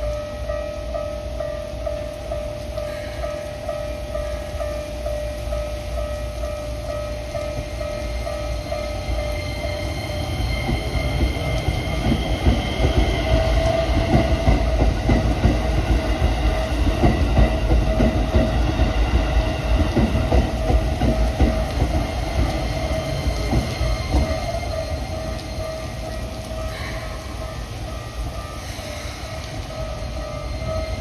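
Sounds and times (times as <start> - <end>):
electric train rumbling: 0.0 - 31.0
high-pitched train whine: 0.0 - 31.0
wheel-on-rail clacks: 7.4 - 28.4.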